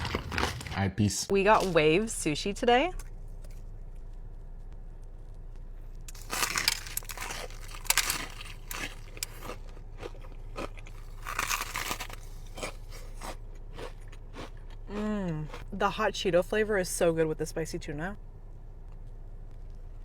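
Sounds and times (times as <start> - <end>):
crunchy chewing: 0.0 - 0.8, 3.0 - 15.7.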